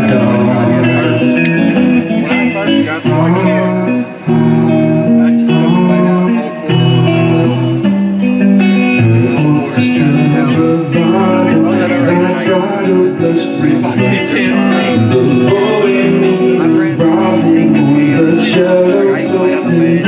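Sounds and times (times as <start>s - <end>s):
live band music: 0.0s - 3.6s
guitar playing chords: 0.0s - 20.0s.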